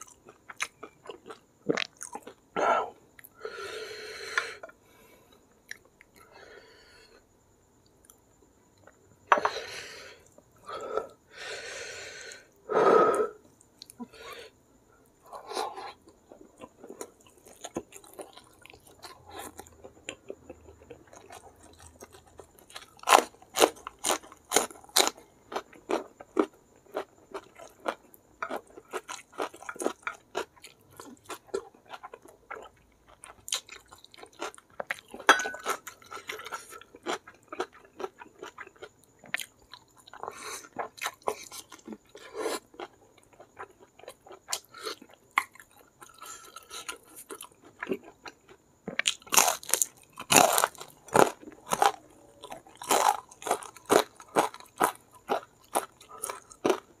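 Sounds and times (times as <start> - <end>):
loud crunching bites: 49.0 - 56.9.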